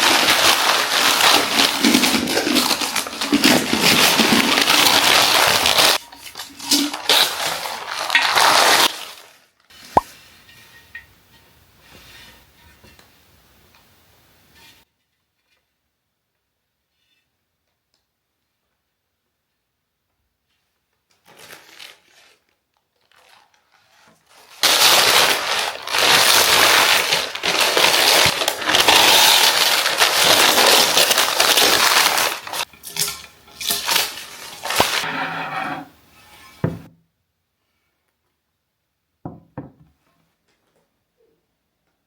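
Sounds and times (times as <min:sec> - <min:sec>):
packaging crinkling and rustling: 0:00.0 - 0:10.0, 0:21.1 - 0:35.1.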